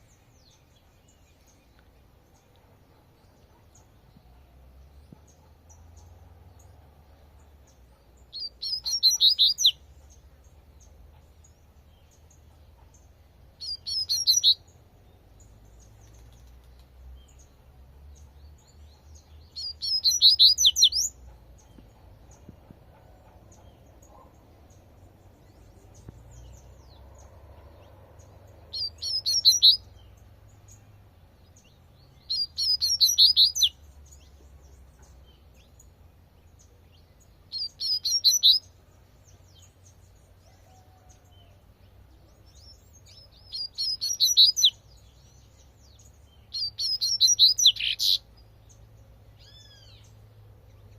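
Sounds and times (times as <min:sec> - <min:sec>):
bird singing high bright notes: 0:08.4 - 0:09.8, 0:13.6 - 0:14.7, 0:19.5 - 0:21.1, 0:28.7 - 0:30.0, 0:32.2 - 0:33.8, 0:37.5 - 0:38.7, 0:43.3 - 0:44.8, 0:46.5 - 0:48.2.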